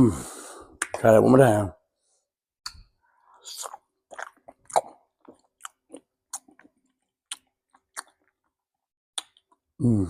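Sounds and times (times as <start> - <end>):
close-miked chewing and mouth clicks: 3.4 - 8.5, 9.2 - 9.6.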